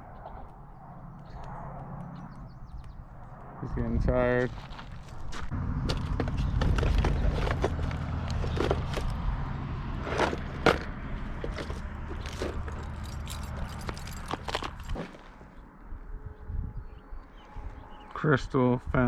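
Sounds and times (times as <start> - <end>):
steady low rumble: 0.0 - 10.0
scattered clicks and rattles: 10.2 - 15.0.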